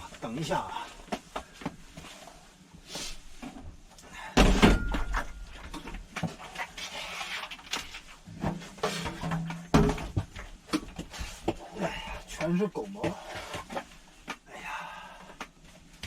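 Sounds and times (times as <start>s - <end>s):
loud clatter and rustling: 4.4s - 11.6s
object knocks and bumps: 8.3s - 11.6s.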